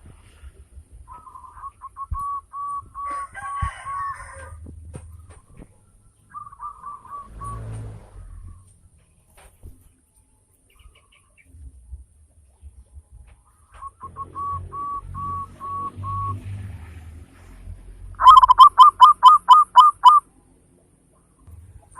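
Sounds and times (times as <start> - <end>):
dove cooing: 18.2 - 20.2
rough high bird call: 18.2 - 20.3.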